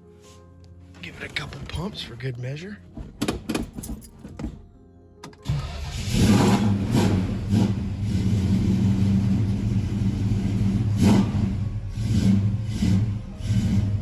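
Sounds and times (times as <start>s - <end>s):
car engine starting and idling: 5.2s - 14.0s.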